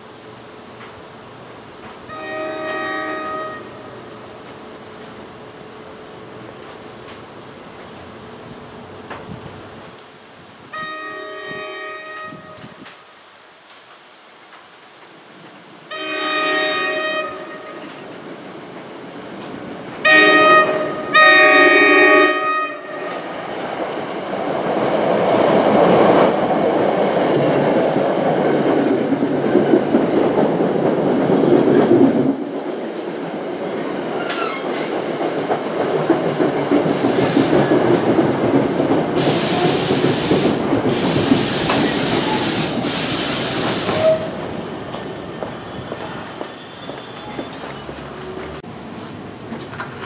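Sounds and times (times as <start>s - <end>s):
train cars rumbling and rattling: 0.0s - 21.3s, 22.3s - 50.0s
train horn blasts: 2.1s - 3.9s, 10.7s - 12.8s, 15.9s - 18.0s, 20.0s - 23.2s
loud brake hisses: 39.2s - 46.4s.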